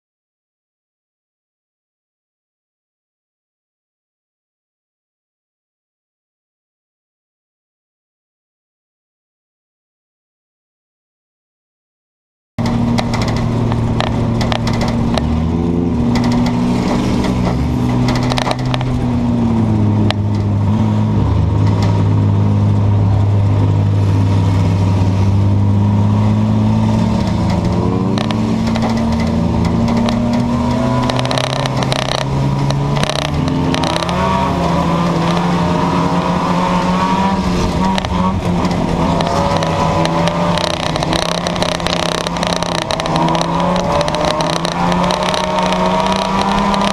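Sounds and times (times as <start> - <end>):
knocks and scrapes: 12.6 - 22.2, 24.0 - 46.9
race car engines revving: 12.6 - 46.9.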